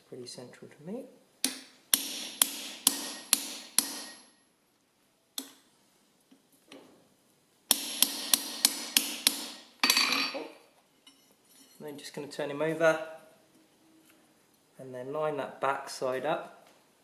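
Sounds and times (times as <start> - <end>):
hammer striking chisel on hot steel: 1.4 - 4.4, 7.7 - 10.4.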